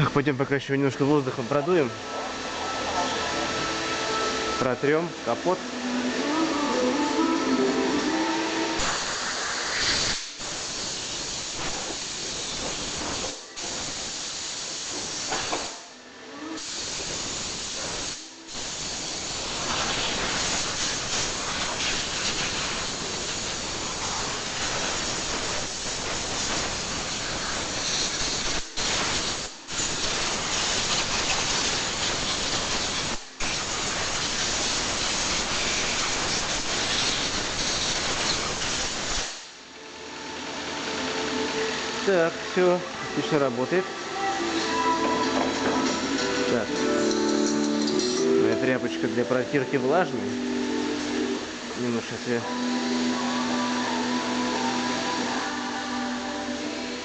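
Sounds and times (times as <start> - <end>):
compressed-air blow gun hissing: 5.7 - 15.8, 16.6 - 39.6, 52.4 - 57.0.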